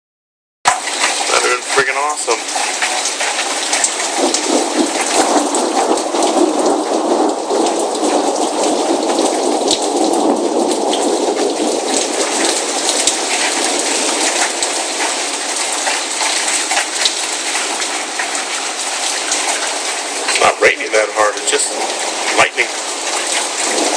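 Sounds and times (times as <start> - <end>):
rain on hard surfaces: 0.7 - 23.9.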